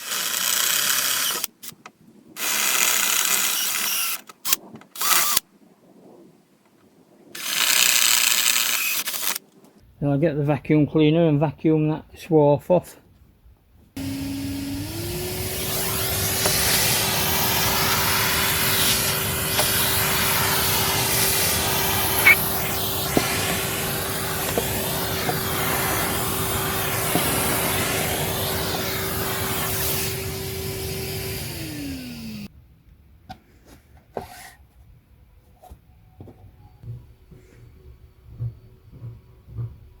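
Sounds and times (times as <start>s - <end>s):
vacuum cleaner whining: 14.0s - 32.5s.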